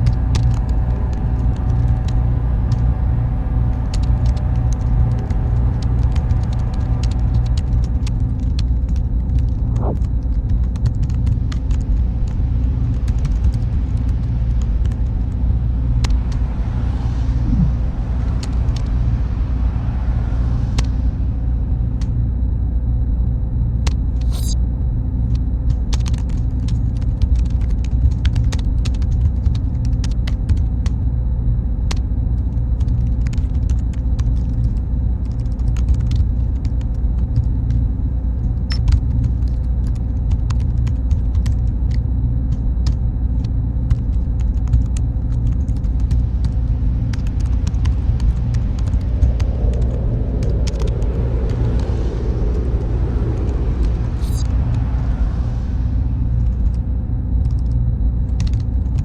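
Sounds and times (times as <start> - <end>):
machine fans rumbling: 11.7 - 22.2, 44.6 - 59.0
faint steady tones: 41.8 - 59.0.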